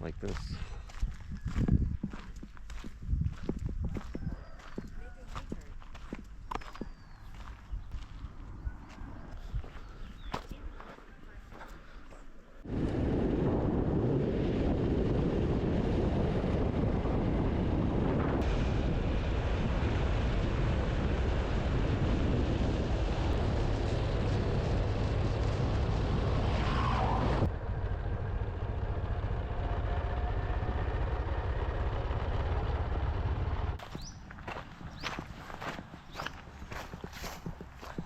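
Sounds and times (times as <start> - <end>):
wind rush on microphone: 0.0 - 10.8, 12.6 - 28.4, 33.9 - 38.0
motorcycle engine running: 27.5 - 38.0.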